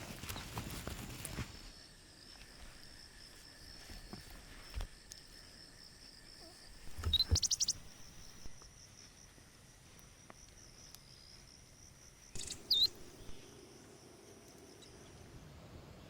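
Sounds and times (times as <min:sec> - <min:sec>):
insects droning: 0:00.1 - 0:16.0
bird chirping: 0:06.4 - 0:08.6, 0:12.3 - 0:13.5.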